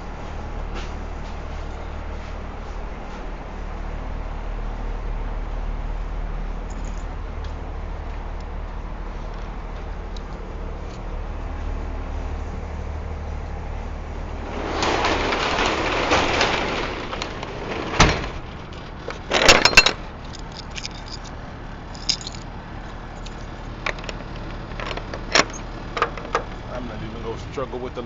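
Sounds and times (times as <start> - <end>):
loud metal clatter: 14.4 - 21.3, 21.9 - 22.5
keys rattling in a lock: 19.1 - 26.5.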